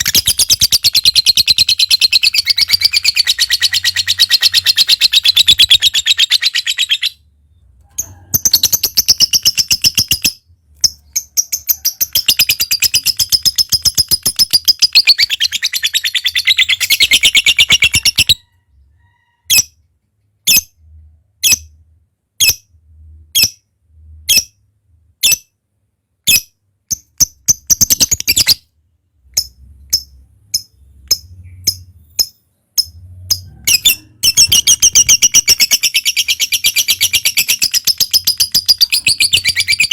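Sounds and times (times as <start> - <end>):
lovebird chattering trills: 0.0 - 7.2
lovebird sharp chirps: 0.0 - 7.2, 8.0 - 18.4, 26.3 - 28.6, 29.3 - 39.9.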